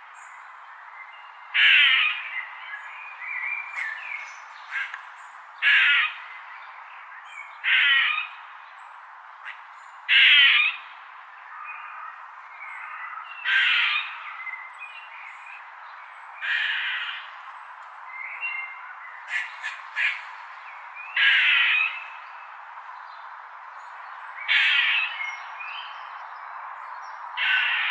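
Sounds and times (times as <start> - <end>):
bird squawking harshly: 19.3 - 20.2, 21.2 - 21.9, 27.4 - 27.9.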